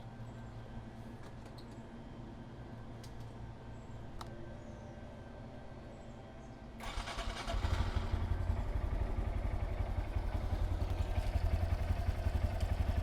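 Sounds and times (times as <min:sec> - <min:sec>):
motorcycle engine idling: 0:07.4 - 0:13.0.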